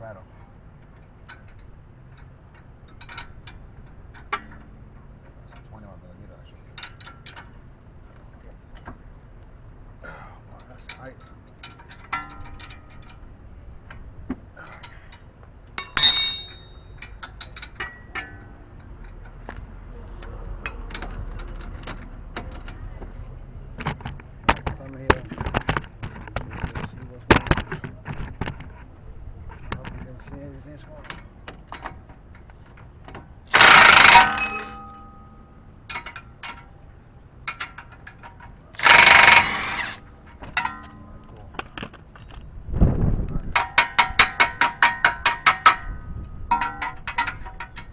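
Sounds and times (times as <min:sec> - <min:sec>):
impact wrench hammering: 0:15.8 - 0:17.0, 0:33.5 - 0:35.4, 0:38.8 - 0:40.0
steel tool clanging on metal: 0:15.8 - 0:18.4, 0:33.5 - 0:36.2
hand tools clicking on metal: 0:15.8 - 0:18.9, 0:33.5 - 0:36.6, 0:37.5 - 0:40.0.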